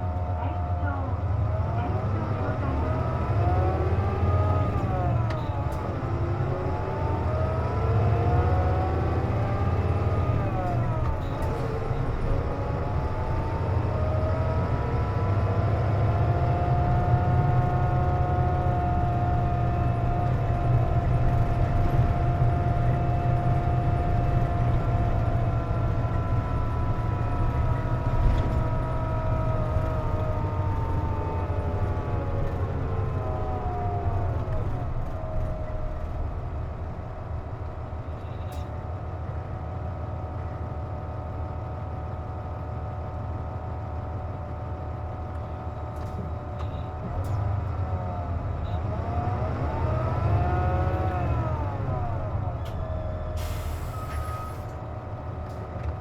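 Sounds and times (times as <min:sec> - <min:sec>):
bus engine whining: 0:00.0 - 0:56.0.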